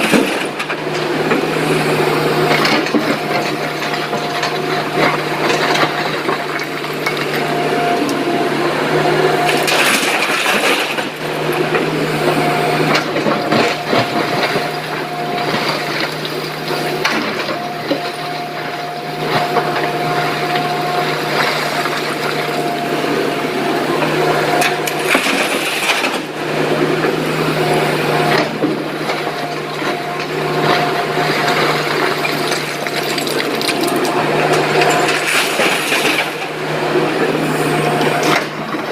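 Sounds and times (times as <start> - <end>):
clatter of rock and stone: 0.0 - 1.1, 2.5 - 7.5, 9.5 - 11.2, 24.6 - 26.3, 31.3 - 36.5
excavator diesel engine running: 0.0 - 38.9.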